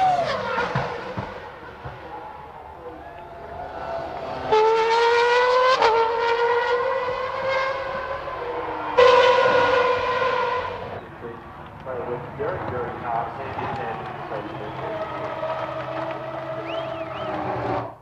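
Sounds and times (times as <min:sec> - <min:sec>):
racing car engines at high revs: 0:00.0 - 0:18.0.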